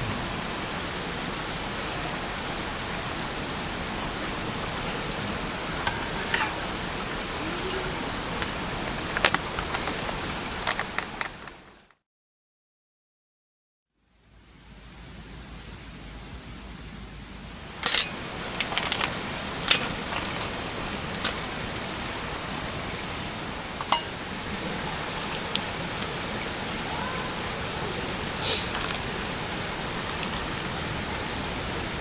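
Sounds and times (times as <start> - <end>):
campfire hissing: 0.0 - 11.9, 14.2 - 32.0
fire crackles and pops: 0.0 - 11.9, 17.6 - 27.0.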